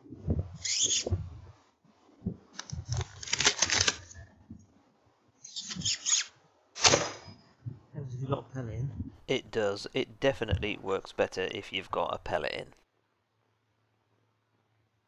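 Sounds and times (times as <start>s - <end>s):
rustling and clicking handling noise: 2.3s - 4.7s.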